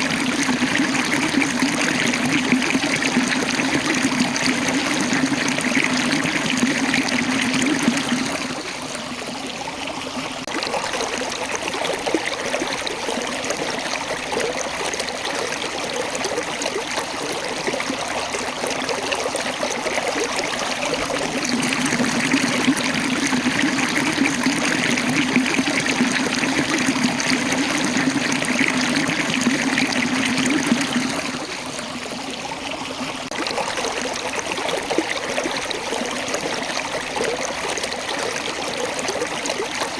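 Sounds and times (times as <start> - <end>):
water rushing over rocks: 19.6 - 32.1.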